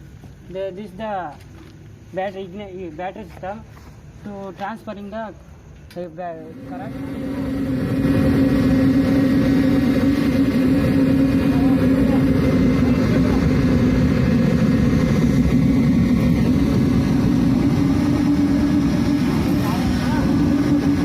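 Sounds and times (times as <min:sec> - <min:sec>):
ramjet engine roaring: 0:06.3 - 0:21.0.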